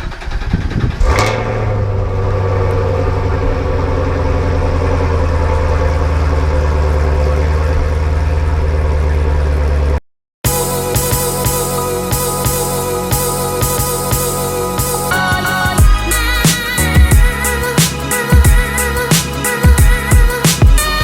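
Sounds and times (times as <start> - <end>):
engine starting and idling: 0.0 - 10.0.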